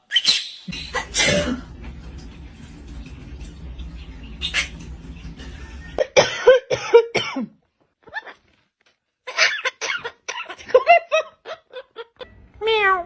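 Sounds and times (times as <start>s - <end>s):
cough-like bursts: 1.0s - 1.7s, 6.0s - 7.6s.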